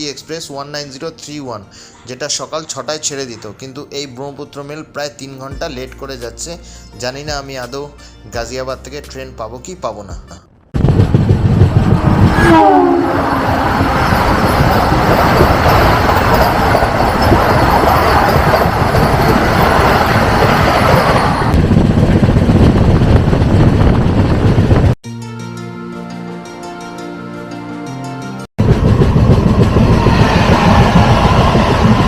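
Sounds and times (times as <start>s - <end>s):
train wheel and rail noise: 10.8s - 24.9s, 28.6s - 32.0s
train horn blast: 11.9s - 14.5s.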